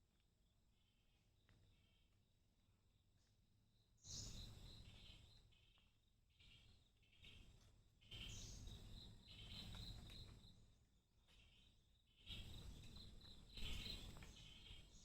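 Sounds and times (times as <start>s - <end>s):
birds chirping: 0.4s - 15.0s
insects chirping: 4.0s - 15.0s.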